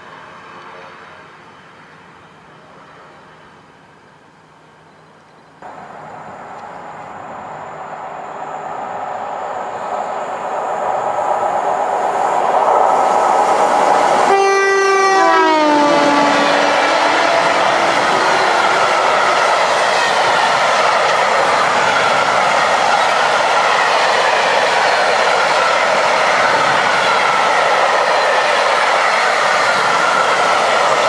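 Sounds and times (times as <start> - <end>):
electric locomotive approaching: 0.0 - 31.0
multi-tone train horn: 14.2 - 18.7.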